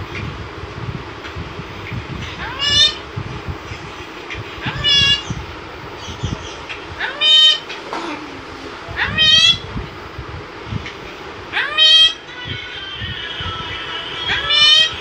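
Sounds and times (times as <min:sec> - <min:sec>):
parrot meow-like calls: 0:02.2 - 0:03.0, 0:04.6 - 0:05.4, 0:07.0 - 0:07.8, 0:09.0 - 0:09.7, 0:11.5 - 0:15.0.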